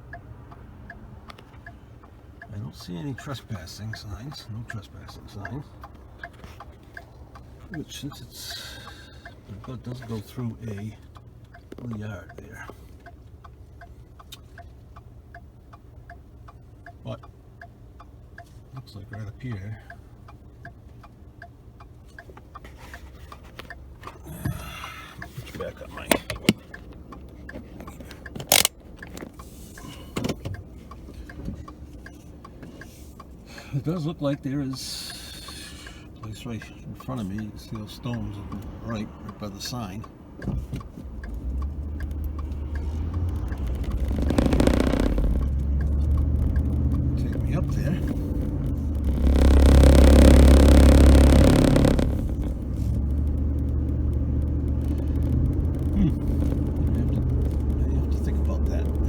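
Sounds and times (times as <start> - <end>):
car engine and road noise: 0.0 - 59.0
light ticks: 0.0 - 59.0
car cabin rumble: 40.4 - 59.0.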